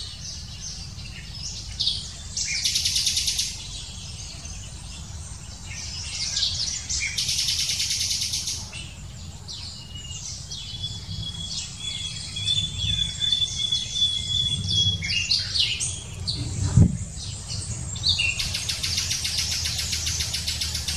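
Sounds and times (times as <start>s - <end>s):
birds chirping and trilling: 0.0s - 20.9s
low rumble: 10.8s - 20.9s.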